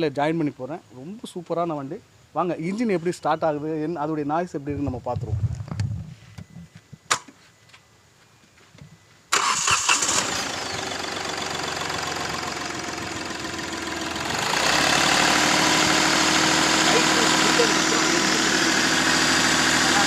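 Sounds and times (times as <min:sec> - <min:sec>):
engine cranking and starting: 0:09.3 - 0:20.0
diesel engine idling: 0:09.4 - 0:20.0.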